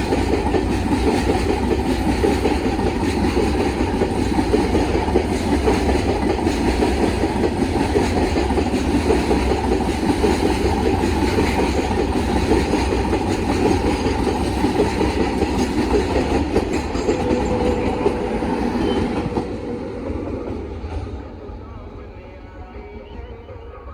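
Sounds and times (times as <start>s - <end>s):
train wheels clattering on track: 0.0s - 21.4s.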